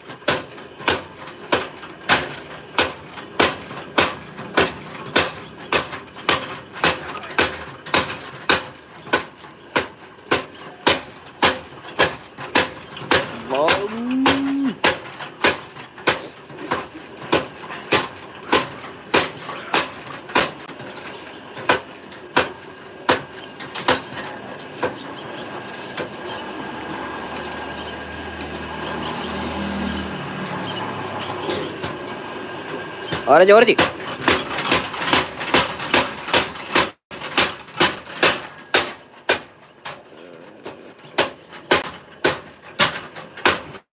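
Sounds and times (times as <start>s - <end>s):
power hammer striking metal: 0.2s - 20.7s, 21.6s - 24.9s, 33.0s - 39.6s, 41.2s - 43.8s
cow mooing: 13.4s - 14.8s.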